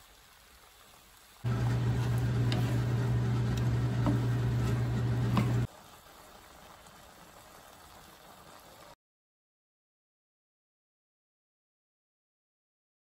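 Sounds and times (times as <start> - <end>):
food sizzling in a pan: 0.0 - 9.0
spatula scraping and tapping: 1.5 - 5.7
steady low hum: 1.5 - 5.7.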